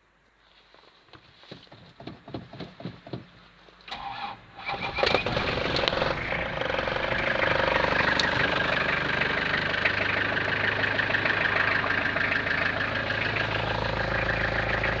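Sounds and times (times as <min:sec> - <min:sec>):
diesel engine idling: 0:04.7 - 0:15.0.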